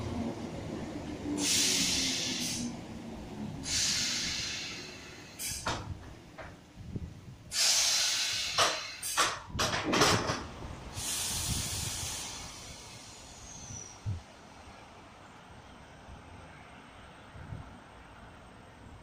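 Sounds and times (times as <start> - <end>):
train rumbling: 0.0 - 19.0
loud hissing bursts: 1.4 - 2.7, 3.6 - 5.8, 7.5 - 9.5, 10.8 - 14.1.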